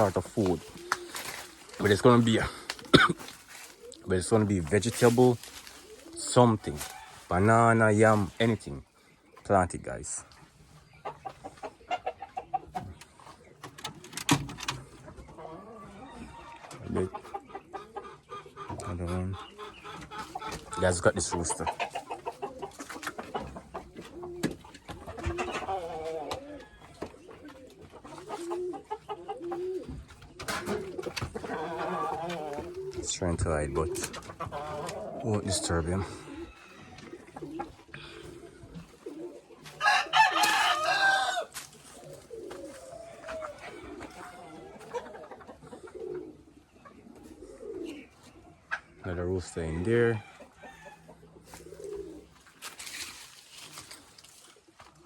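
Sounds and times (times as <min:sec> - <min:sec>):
chickens clucking: 0:00.0 - 0:55.0
rooster crowing: 0:39.6 - 0:41.6.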